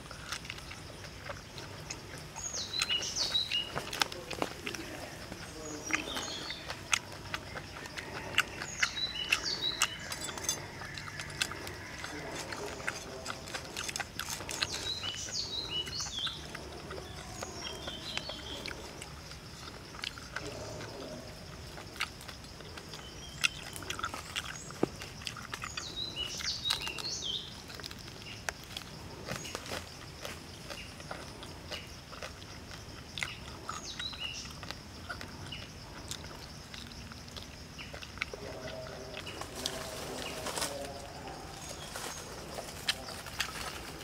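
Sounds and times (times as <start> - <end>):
birds chirping: 0.0 - 44.0
crunchy chewing: 0.0 - 44.0.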